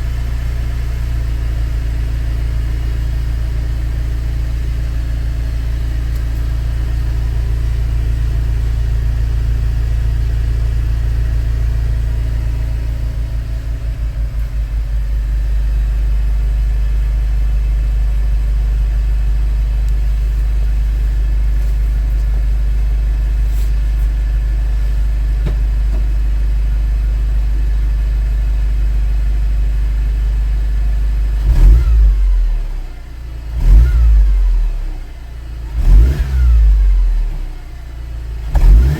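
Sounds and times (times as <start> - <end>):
car engine idling: 0.0 - 38.9
car engine revving: 31.4 - 32.8, 33.5 - 34.9, 35.6 - 37.5, 38.4 - 38.9.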